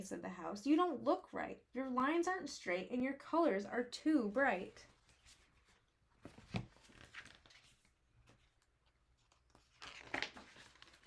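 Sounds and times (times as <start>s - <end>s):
paper page rustling: 4.9s - 11.0s.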